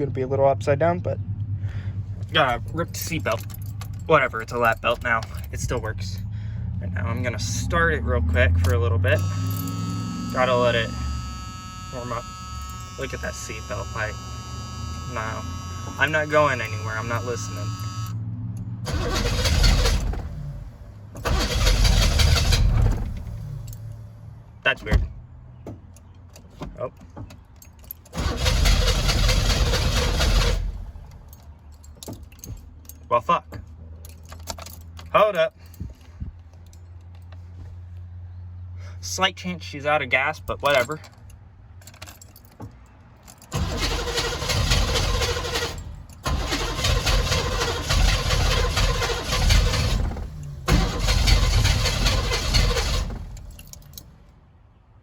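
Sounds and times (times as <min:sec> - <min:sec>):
truck engine cranking: 0:07.2 - 0:18.1, 0:18.8 - 0:24.2, 0:27.3 - 0:33.0, 0:43.2 - 0:54.3.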